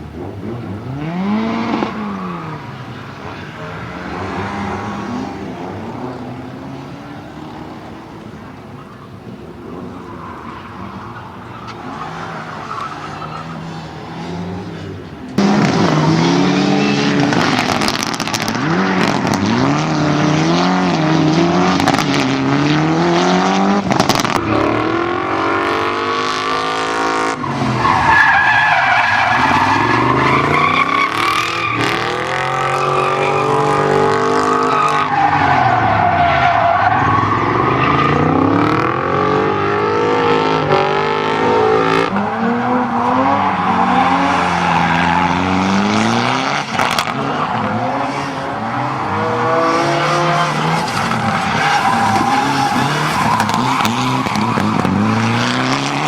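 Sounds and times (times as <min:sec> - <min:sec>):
car engine revving: 0:00.0 - 0:56.0
tyres squealing: 0:27.4 - 0:38.8, 0:40.0 - 0:56.0.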